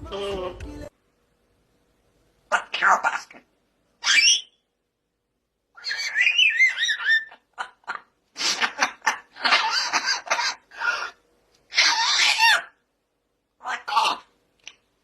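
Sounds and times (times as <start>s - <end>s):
parrot laugh-like chatter: 5.8s - 12.8s.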